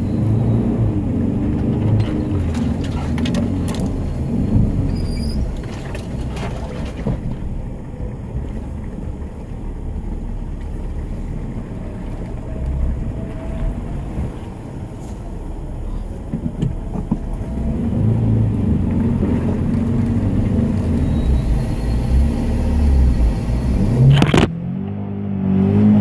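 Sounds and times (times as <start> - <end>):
engine running in mud: 0.0 - 26.0
knocks and clatters: 1.5 - 7.7.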